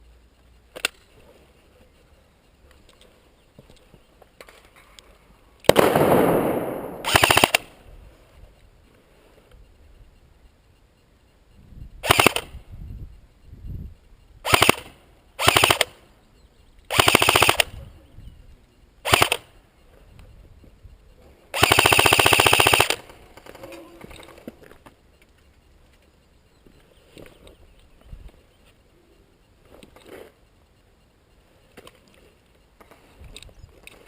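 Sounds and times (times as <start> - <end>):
airsoft gun rattling bursts: 5.7 - 7.8, 12.0 - 12.6, 14.4 - 16.0, 16.9 - 17.8, 19.0 - 19.5, 21.5 - 24.2.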